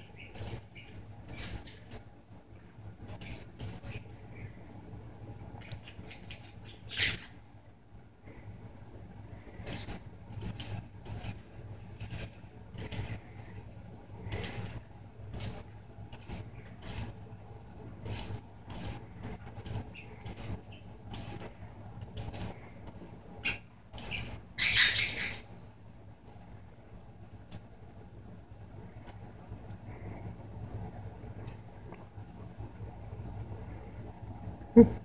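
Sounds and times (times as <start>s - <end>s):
bird toy jingling and rattling: 0.0s - 2.1s, 3.0s - 4.5s, 9.5s - 17.4s, 18.0s - 27.7s.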